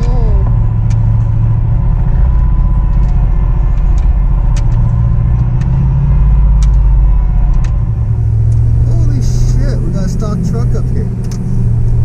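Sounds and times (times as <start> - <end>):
truck engine rumbling: 0.0 - 12.0
sharp clicks and knocks: 2.2 - 7.9.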